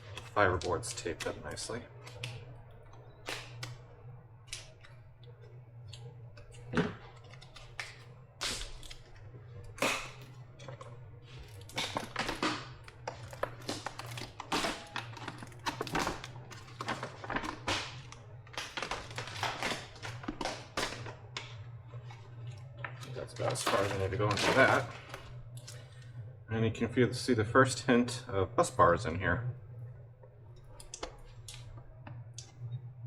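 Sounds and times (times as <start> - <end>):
low hum: 0.0 - 33.0
plastic wrap crackling: 6.0 - 25.9.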